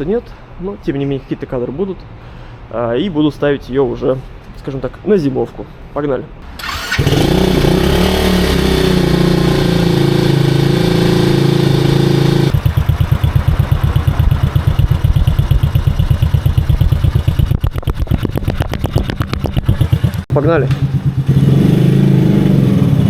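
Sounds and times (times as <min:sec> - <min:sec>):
moped engine idling: 0:12.0 - 0:21.4.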